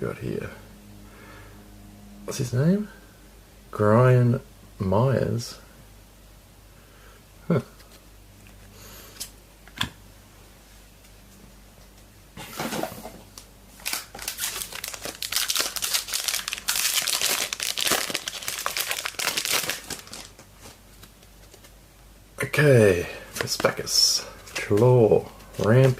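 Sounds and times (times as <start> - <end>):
wrapper ripping: 13.8 - 21.6
wrapper crinkling: 13.8 - 21.7.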